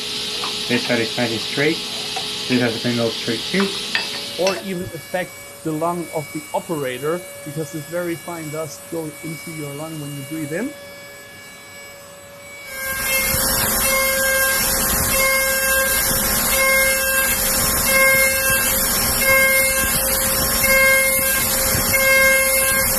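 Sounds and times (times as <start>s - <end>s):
milling machine cutting: 0.0s - 10.8s, 12.7s - 22.9s.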